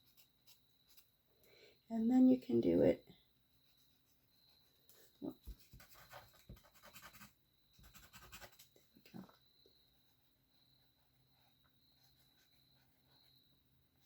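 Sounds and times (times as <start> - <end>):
drawing tool scratching paper: 5.4 - 8.7.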